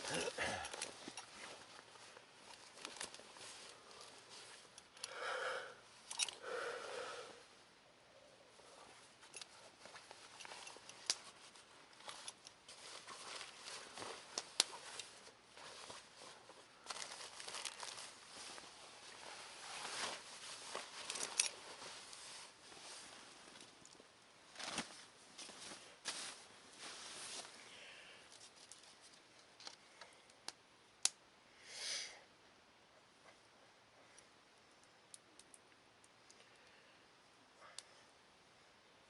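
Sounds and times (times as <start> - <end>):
fabric rustling and crinkling: 0.0 - 5.0, 8.5 - 29.6.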